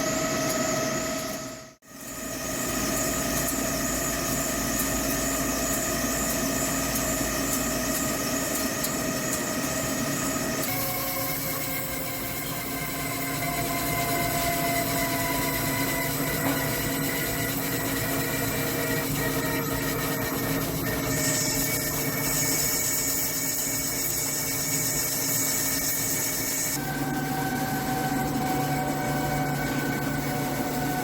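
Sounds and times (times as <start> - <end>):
lathe machine hum: 0.0 - 31.0.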